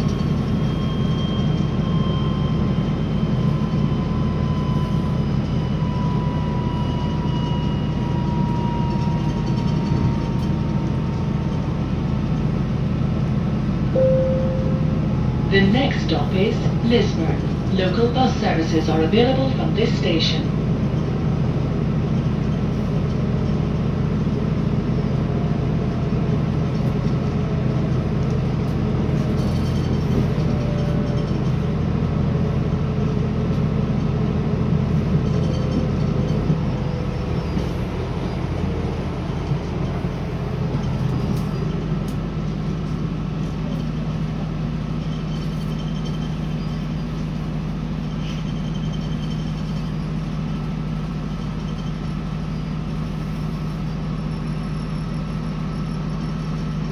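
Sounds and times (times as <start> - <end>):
train engine hum: 0.0 - 56.9
faint braking whine: 13.8 - 20.2.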